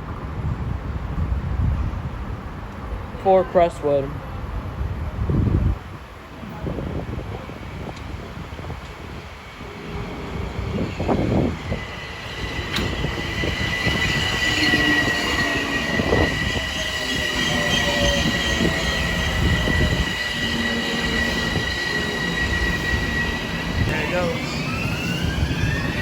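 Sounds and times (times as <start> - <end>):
low falling train whine: 4.2 - 26.0
train cars rumbling: 4.2 - 26.0
train wheels and brakes squealing: 8.9 - 26.0.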